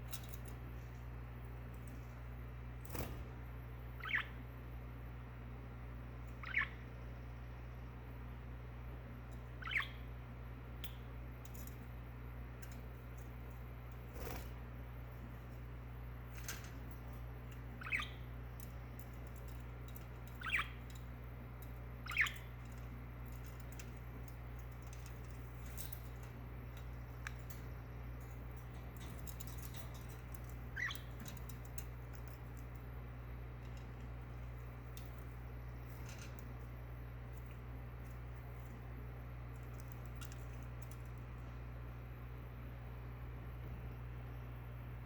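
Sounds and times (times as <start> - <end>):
low hum: 0.0 - 45.0
budgerigar chirps: 4.0 - 4.4, 6.4 - 6.8, 9.6 - 10.0, 17.8 - 18.2, 22.0 - 22.4.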